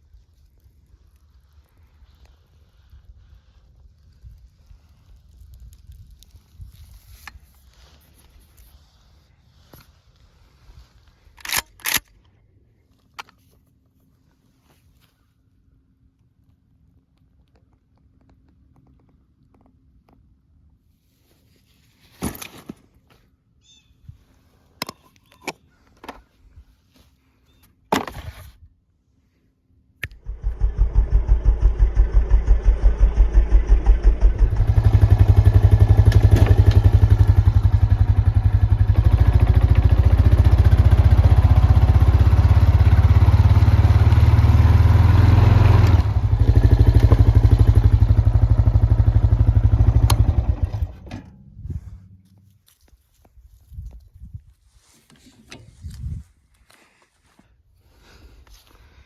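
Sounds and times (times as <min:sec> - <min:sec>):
atv engine putter: 0:30.0 - 0:51.2.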